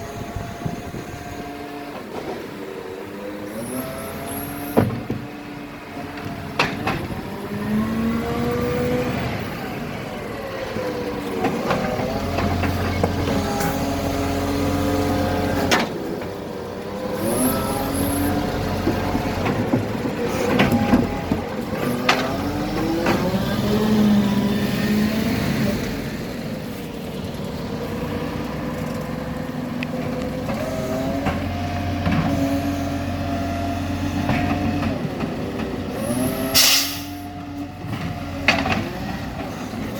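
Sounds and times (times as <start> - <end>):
garbage truck engine revving: 0.0 - 39.9
air hiss: 36.5 - 37.2.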